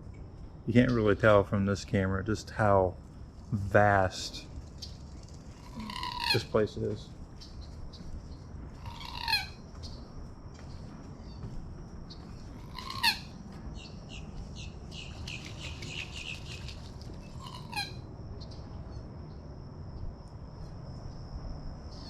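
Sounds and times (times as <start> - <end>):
bird chattering: 5.5 - 6.7, 8.8 - 9.6, 12.6 - 17.9
harsh bird squawks: 5.6 - 6.8, 8.8 - 9.6, 12.6 - 18.0.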